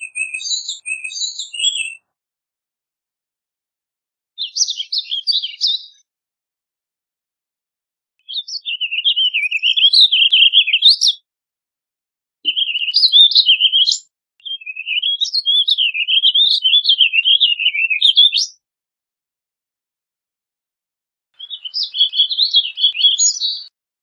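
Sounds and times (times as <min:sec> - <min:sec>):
bird warbling song: 0:00.0 - 0:02.1, 0:04.4 - 0:06.0, 0:08.2 - 0:11.2, 0:12.5 - 0:18.6, 0:21.4 - 0:23.7.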